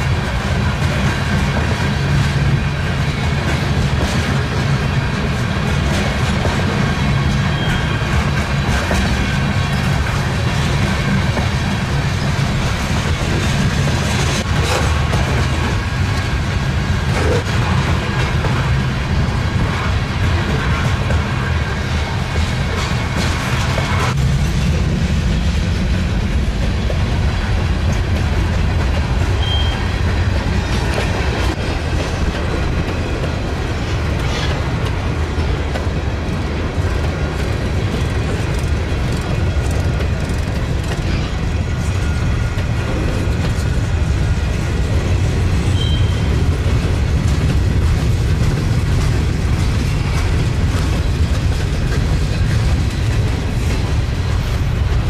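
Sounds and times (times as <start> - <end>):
train wheels rumbling on rail: 0.0 - 55.0
wheel clickety-clack on rail joints: 0.0 - 55.0
faint high wheel squeals: 7.5 - 8.1, 29.4 - 29.9, 45.7 - 46.4.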